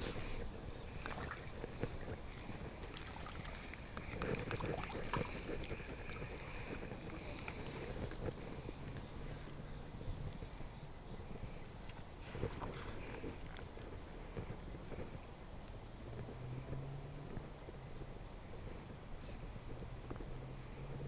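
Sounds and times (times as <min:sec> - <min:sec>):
river water sloshing: 0:00.0 - 0:09.6, 0:11.8 - 0:15.2.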